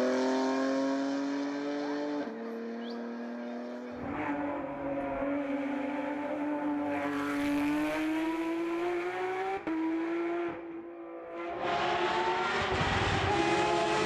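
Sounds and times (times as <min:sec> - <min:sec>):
race car engine pulling hard: 0:00.0 - 0:14.0.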